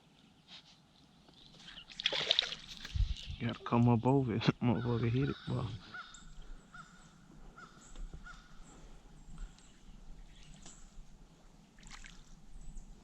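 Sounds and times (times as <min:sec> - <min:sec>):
bird calling: 0:04.6 - 0:11.0.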